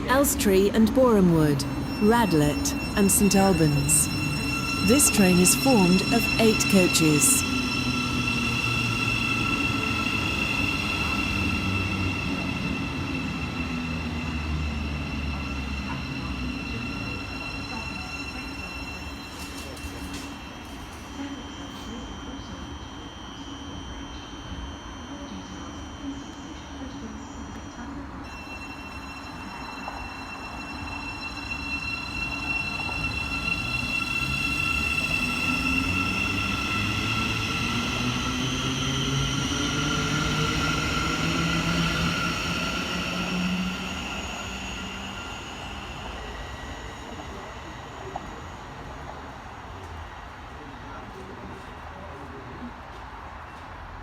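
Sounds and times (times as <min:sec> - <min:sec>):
electric train whine and rumble: 0:00.0 - 0:54.0.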